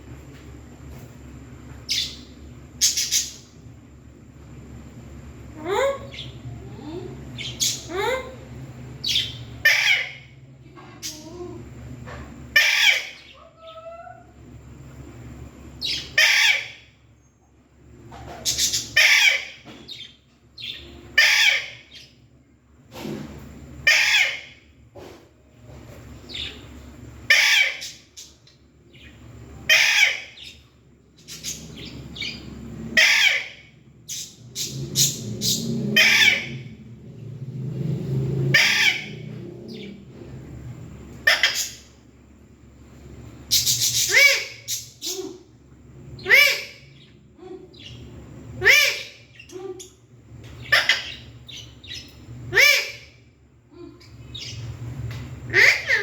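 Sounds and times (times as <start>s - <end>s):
parakeet screeching: 9.0s - 10.4s, 12.5s - 14.4s, 15.8s - 17.0s, 18.4s - 22.1s, 23.8s - 24.6s, 27.3s - 28.4s, 29.0s - 30.6s, 31.3s - 36.9s, 38.4s - 39.9s, 41.2s - 42.0s, 43.5s - 45.5s, 46.2s - 49.9s, 50.6s - 53.2s, 55.5s - 56.0s
low rumble: 33.7s - 41.1s.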